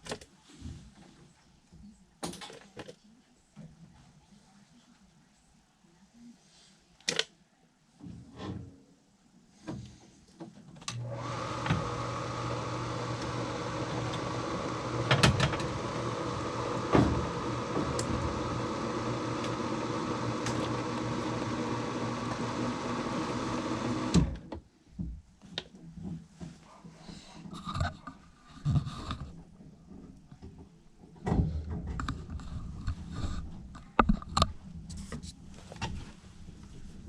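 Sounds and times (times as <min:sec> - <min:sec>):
electric motor humming: 0:11.0 - 0:24.4.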